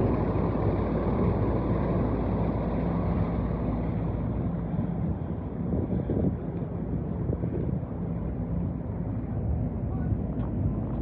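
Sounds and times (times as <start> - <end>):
wind noise on microphone: 4.6 - 11.0.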